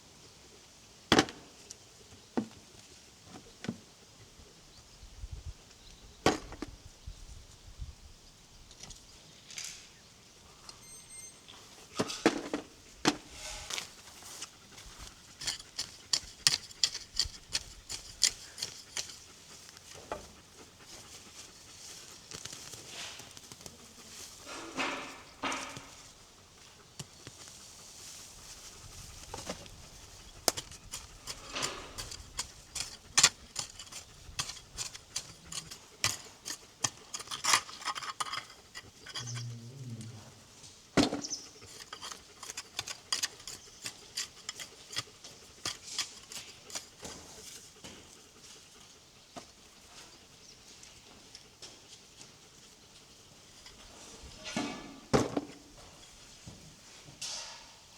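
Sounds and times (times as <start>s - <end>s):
short scraping: 13.1s - 19.2s.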